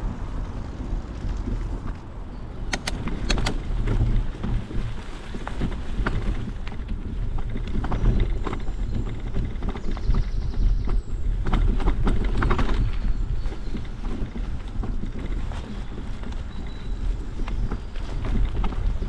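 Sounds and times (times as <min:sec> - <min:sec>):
bicycle rattling over bumps: 0:00.0 - 0:19.0
wind buffeting microphone: 0:00.0 - 0:19.0.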